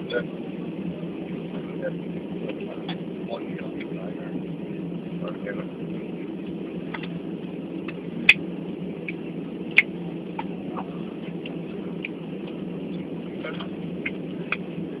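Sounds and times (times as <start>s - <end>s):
airliner cabin hum: 0.0s - 15.0s.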